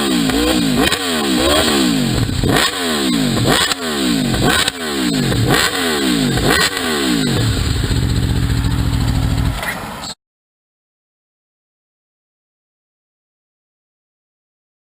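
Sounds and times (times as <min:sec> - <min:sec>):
motorcycle engine idling: 0:00.0 - 0:10.1
motorcycle engine revving: 0:00.0 - 0:10.2.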